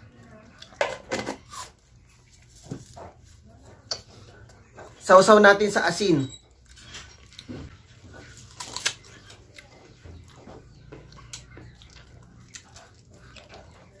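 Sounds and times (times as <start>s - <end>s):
crisp chewing crunches: 6.7s - 14.0s.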